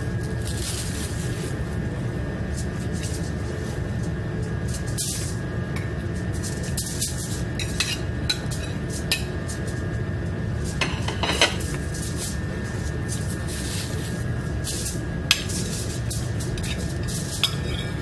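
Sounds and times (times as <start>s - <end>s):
steady low hum: 0.0s - 18.0s
dishes and utensils clinking: 7.5s - 9.8s, 10.7s - 11.8s, 14.7s - 18.0s.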